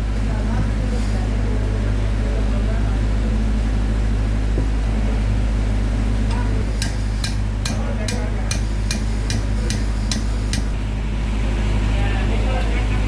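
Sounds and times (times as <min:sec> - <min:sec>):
machine humming: 0:03.2 - 0:13.0
hammer striking metal: 0:06.8 - 0:10.8.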